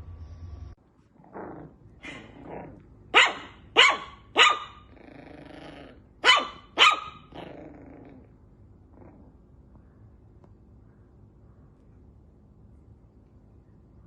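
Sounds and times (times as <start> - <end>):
dog growling: 1.1 - 2.9, 4.8 - 6.1, 7.2 - 9.5
dog barking: 3.1 - 4.9, 6.2 - 7.4.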